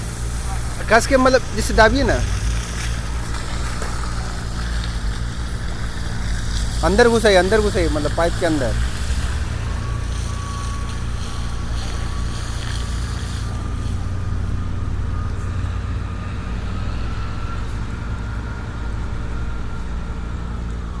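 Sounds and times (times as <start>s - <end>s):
hiss: 0.0s - 14.4s
pressure washer pump humming: 0.0s - 21.0s
thin whine: 0.0s - 21.0s.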